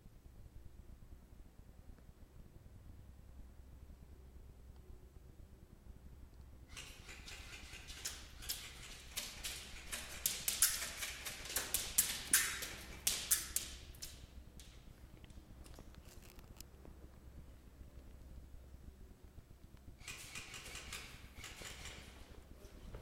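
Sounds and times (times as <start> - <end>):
sharp knocks and clicks: 6.7 - 15.4
rustling: 6.7 - 18.2.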